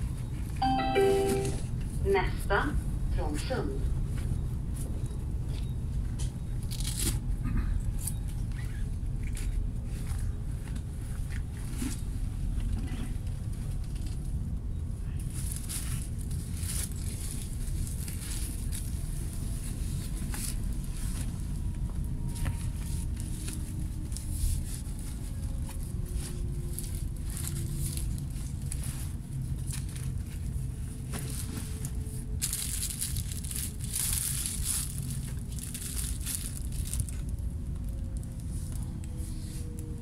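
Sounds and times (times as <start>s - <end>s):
rustling handling noise: 15.3s - 39.8s.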